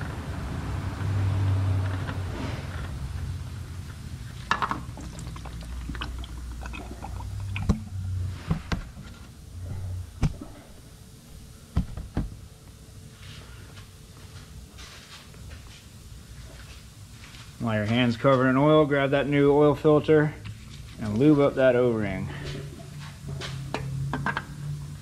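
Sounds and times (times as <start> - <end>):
oil pouring and dripping: 4.2 - 8.2.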